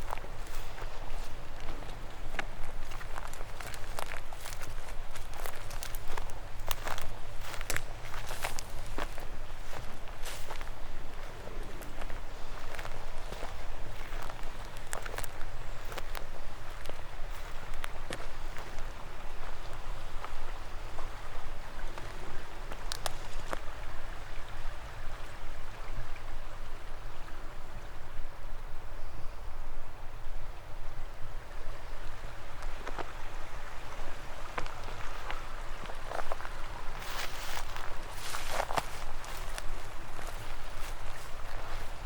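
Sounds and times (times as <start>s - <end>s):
footsteps on forest floor: 0.0s - 19.6s, 34.5s - 42.0s
stream flowing: 0.0s - 42.0s.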